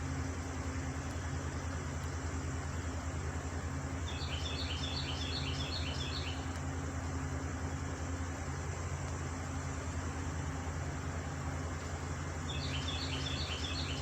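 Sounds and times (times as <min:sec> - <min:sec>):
low engine hum: 0:00.0 - 0:14.0
bird chirping: 0:04.1 - 0:06.5, 0:12.5 - 0:14.0.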